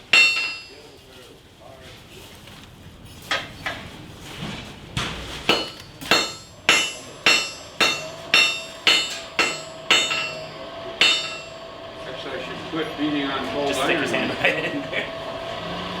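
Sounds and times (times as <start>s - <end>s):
hammer ringing on anvil: 0.0s - 0.8s, 5.5s - 11.7s.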